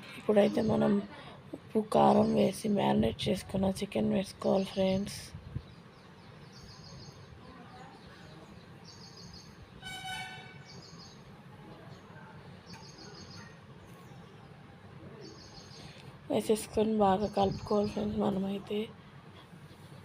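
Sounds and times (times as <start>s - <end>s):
bird chirping: 4.3s - 18.8s
horn toot: 9.8s - 10.7s.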